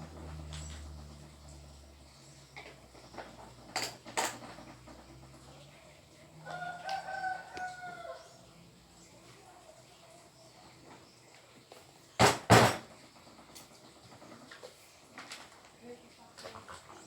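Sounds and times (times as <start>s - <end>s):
rooster crowing: 6.4s - 8.4s.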